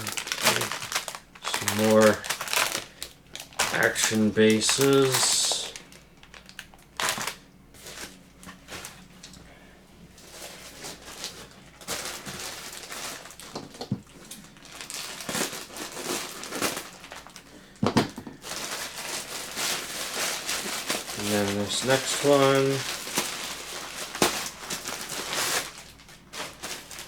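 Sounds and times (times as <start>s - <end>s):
plastic packaging crinkling: 0.0s - 9.4s, 10.2s - 27.0s.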